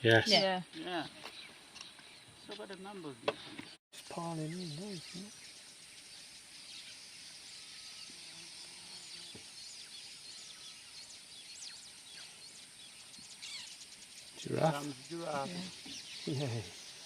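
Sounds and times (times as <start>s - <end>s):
birds chirping and whistling: 3.4s - 17.0s
high insect drone: 4.0s - 17.0s.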